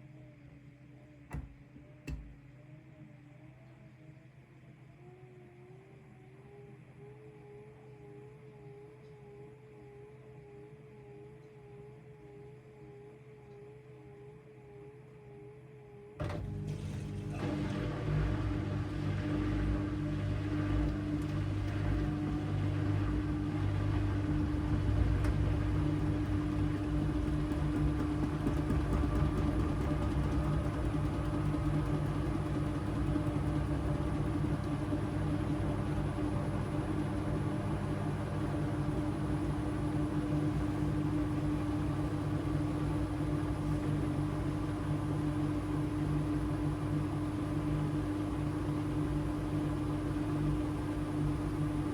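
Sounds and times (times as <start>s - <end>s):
washing machine running: 16.2s - 51.9s.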